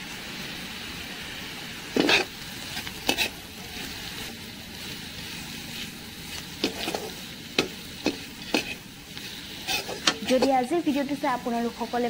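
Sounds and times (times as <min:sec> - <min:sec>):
food sizzling in oil: 0:00.0 - 0:12.0
metal spatula scraping a wok: 0:01.8 - 0:10.7.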